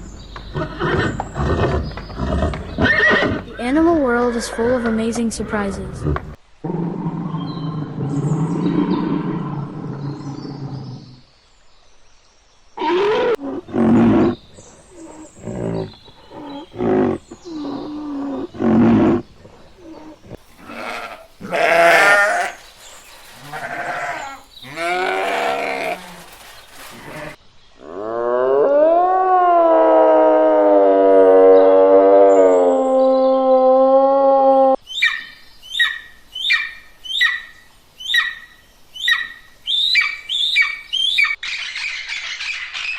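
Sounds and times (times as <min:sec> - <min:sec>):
animal cries and growls: 0:12.8 - 0:34.8.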